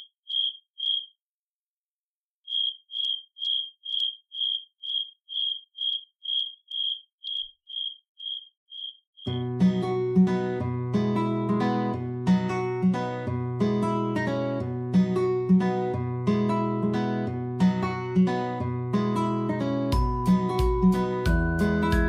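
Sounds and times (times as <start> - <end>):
high-pitched chirping beeps: 0.0 - 1.2, 2.5 - 9.4
strummed acoustic guitar music: 9.3 - 22.0.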